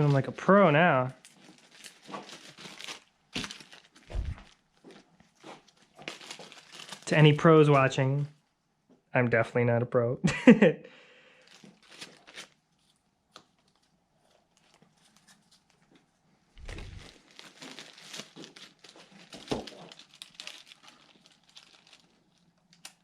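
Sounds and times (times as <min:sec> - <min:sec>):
plastic bag crinkling: 0:01.1 - 0:07.3, 0:11.4 - 0:12.6, 0:13.4 - 0:16.0, 0:16.6 - 0:23.0.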